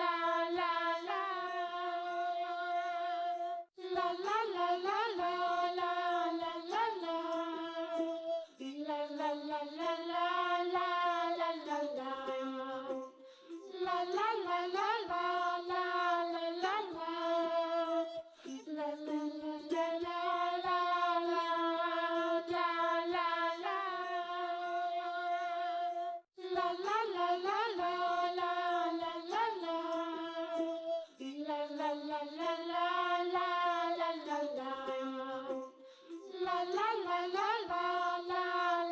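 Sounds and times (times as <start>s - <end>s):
child-like voice singing: 0.0s - 5.8s.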